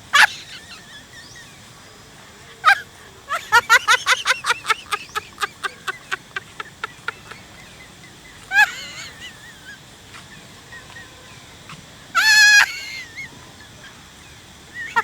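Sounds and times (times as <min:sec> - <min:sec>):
monkey wavering scream: 0:02.6 - 0:06.2, 0:12.2 - 0:13.3
young monkey shrill calls: 0:12.2 - 0:13.3.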